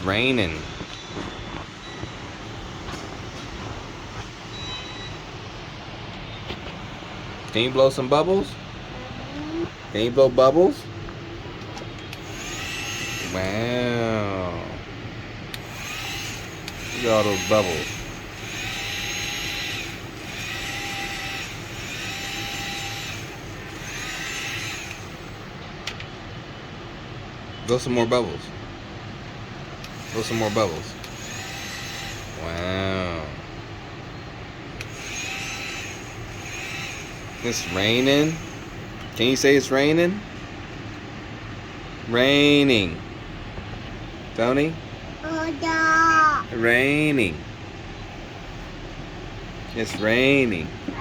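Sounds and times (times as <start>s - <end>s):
small electric motor whirring: 12.2s - 13.8s, 15.6s - 25.5s, 29.9s - 32.7s, 34.8s - 38.8s.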